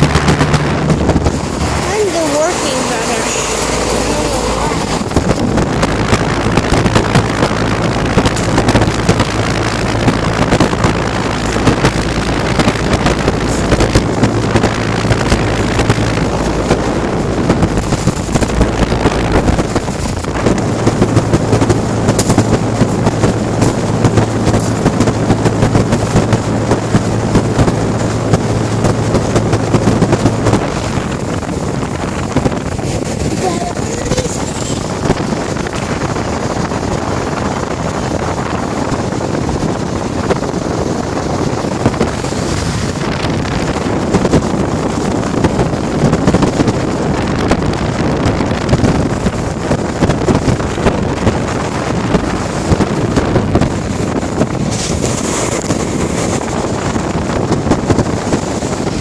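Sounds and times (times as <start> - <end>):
air conditioning fans rushing: 0.0 - 59.0
low hum: 0.0 - 59.0.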